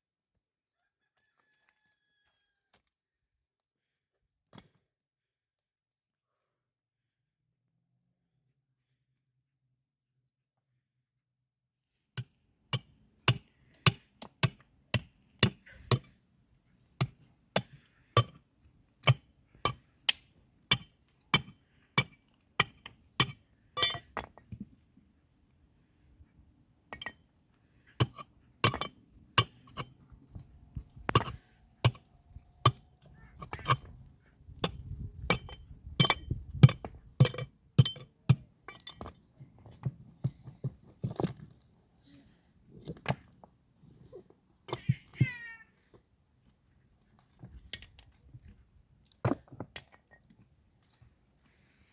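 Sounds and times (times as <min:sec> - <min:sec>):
hammer striking stone: 0:34.6 - 0:39.2.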